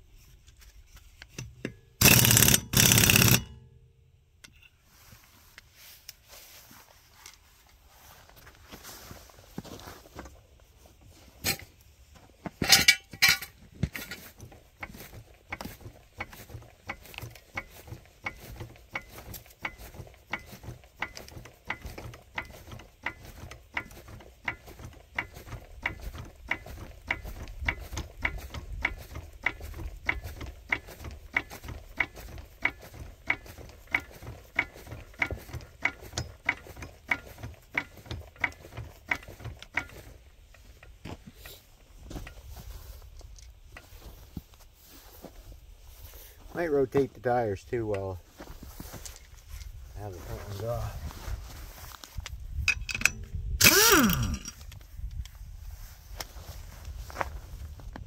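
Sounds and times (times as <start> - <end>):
metal clatter: 0.8 - 3.7, 12.5 - 41.0, 52.6 - 54.7
ratchet tool clicking: 1.4 - 3.6, 52.7 - 54.7.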